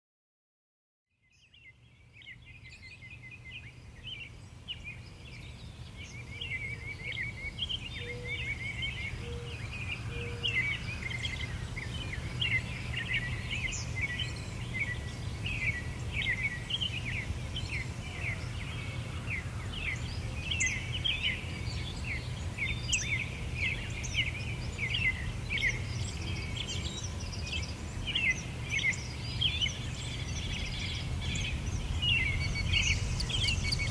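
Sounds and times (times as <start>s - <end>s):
small birds chirping: 2.2s - 33.9s
low background rumble: 30.6s - 33.9s.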